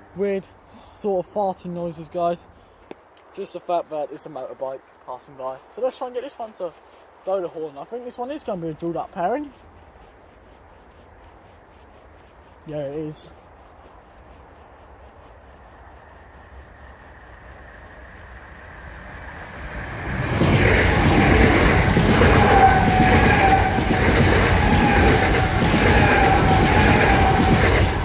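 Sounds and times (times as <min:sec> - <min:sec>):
train passing at speed: 0:15.6 - 0:28.0.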